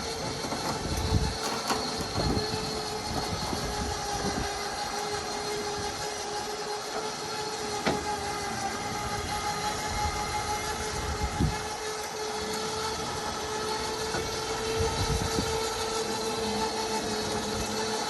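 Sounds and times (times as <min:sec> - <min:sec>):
lift motor whine: 0:00.0 - 0:18.0
lift mechanism knocks and clicks: 0:01.4 - 0:02.7.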